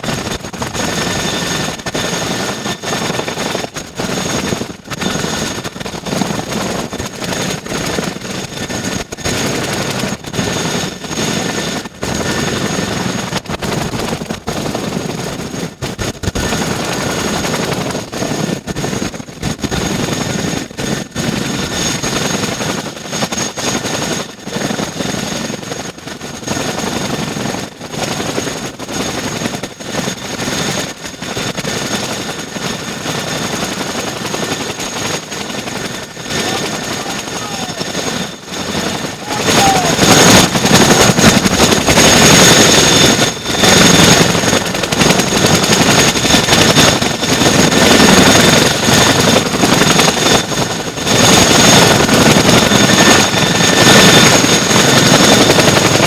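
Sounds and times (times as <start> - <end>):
helicopter turbine whine: 29.8 - 56.0
rotors rushing noise: 35.6 - 44.6.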